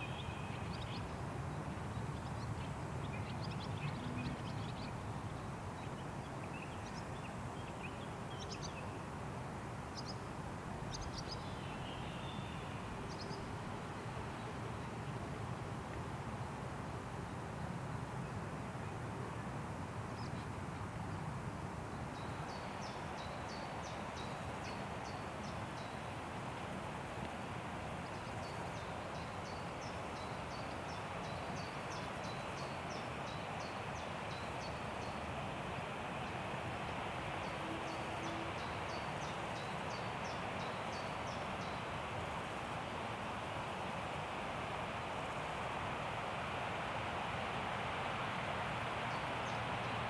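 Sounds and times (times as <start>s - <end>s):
wind rushing through trees: 0.0s - 50.0s.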